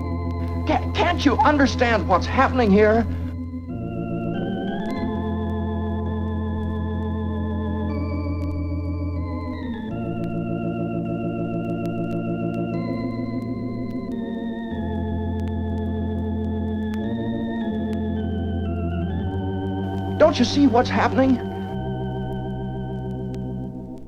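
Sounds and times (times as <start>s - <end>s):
organ playing slow chords: 0.0s - 24.0s.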